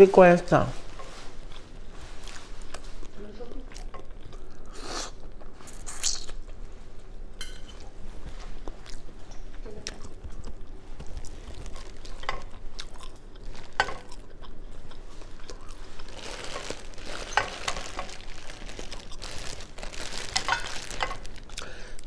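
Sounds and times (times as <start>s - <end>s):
chewing with wet smacks: 2.6s - 6.6s, 8.6s - 17.8s
plastic bag crinkling: 11.0s - 14.2s, 15.1s - 22.0s.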